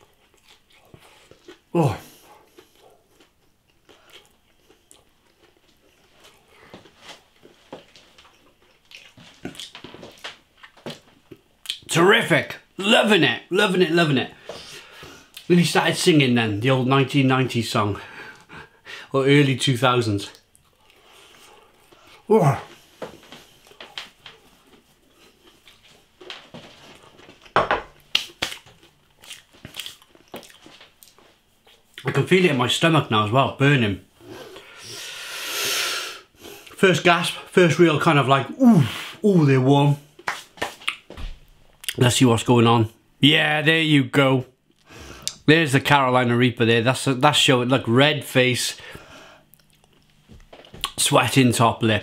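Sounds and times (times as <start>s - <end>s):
person chewing and biting: 0.0s - 11.8s, 20.4s - 32.0s, 49.4s - 51.0s
mouth clicks and smacks: 28.1s - 32.1s, 40.2s - 41.1s, 49.5s - 51.0s.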